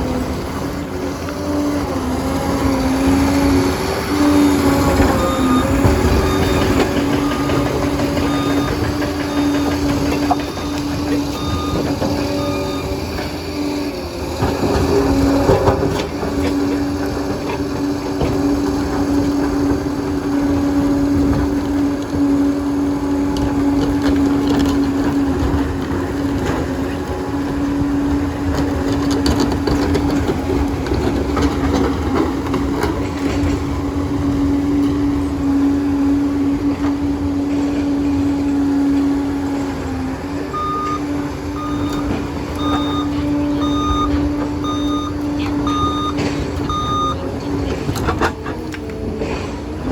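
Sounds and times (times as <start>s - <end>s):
bulldozer diesel engine whining: 0.0s - 49.9s
reversing alarm beeping: 4.2s - 16.0s, 39.8s - 47.6s.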